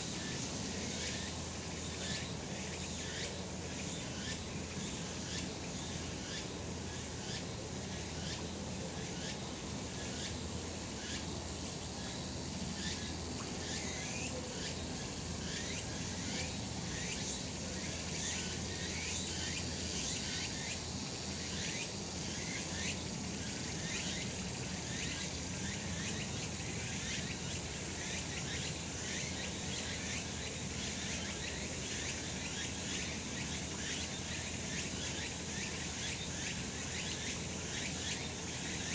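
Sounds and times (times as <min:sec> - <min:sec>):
cicadas singing: 0:11.0 - 0:38.9.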